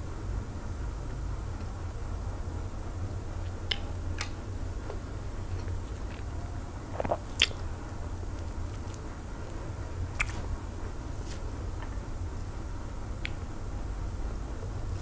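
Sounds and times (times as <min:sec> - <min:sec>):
steady low hum: 0:00.0 - 0:15.0
wet chewing smacks and clicks: 0:06.9 - 0:09.1, 0:10.1 - 0:10.4.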